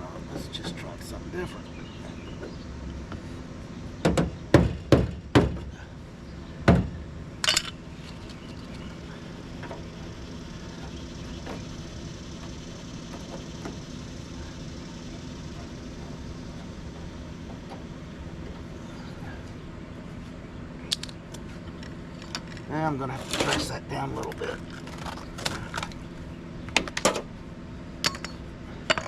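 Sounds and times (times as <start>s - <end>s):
steady low hum: 0.0s - 29.0s
knocks on sheet metal: 4.0s - 5.6s.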